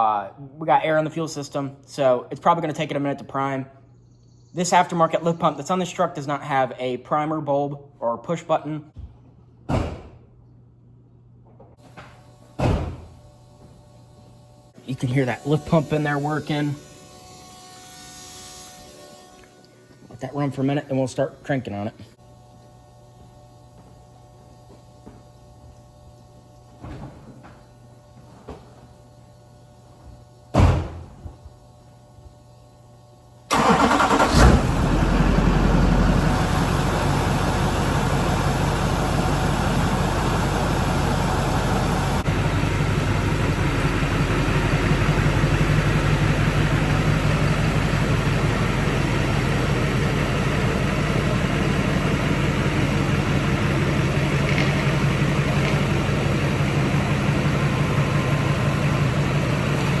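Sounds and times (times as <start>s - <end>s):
thump: 9.7s - 10.2s, 12.0s - 13.1s, 30.6s - 31.4s
diesel engine cranking and starting: 33.5s - 60.0s
diesel engine idling: 33.5s - 60.0s.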